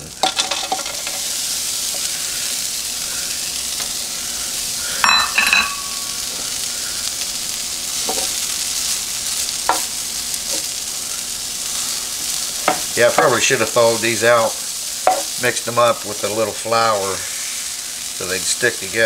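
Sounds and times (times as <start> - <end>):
hash browns sizzling in oil: 0.0 - 19.0
ringing metal clink: 5.0 - 6.0.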